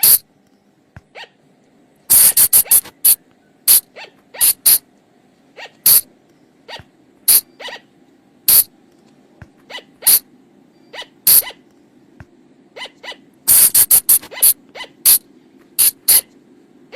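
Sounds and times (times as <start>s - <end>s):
flying lemur calls: 0.0s - 0.2s, 2.1s - 4.8s, 5.6s - 6.1s, 6.7s - 7.9s, 9.6s - 10.3s, 10.9s - 11.6s, 12.8s - 15.2s, 15.8s - 16.3s.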